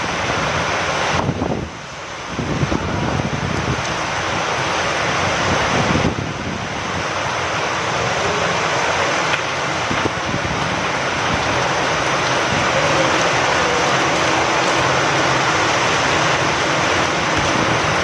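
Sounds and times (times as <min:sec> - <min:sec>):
steady rain falling: 0:00.0 - 0:18.0
wind: 0:00.0 - 0:18.0.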